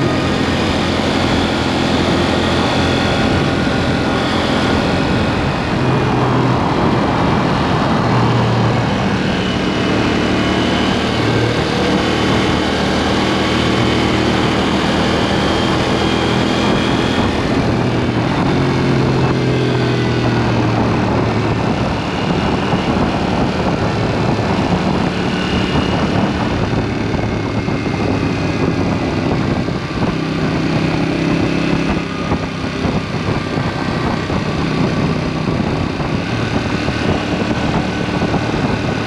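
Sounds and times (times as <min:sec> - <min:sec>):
motorcycle engine revving: 0:00.0 - 0:39.0
wind and road noise: 0:00.0 - 0:39.0.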